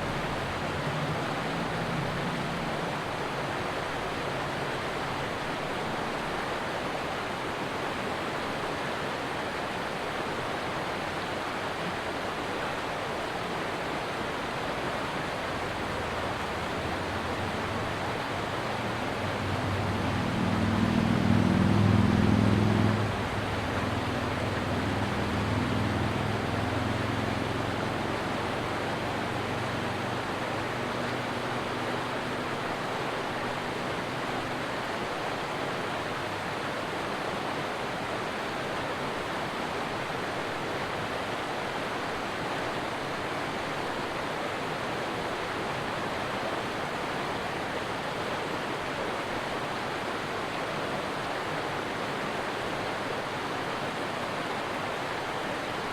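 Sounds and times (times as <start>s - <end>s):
low engine hum: 0.0s - 5.2s, 14.8s - 36.7s
stream water rushing: 0.0s - 55.9s.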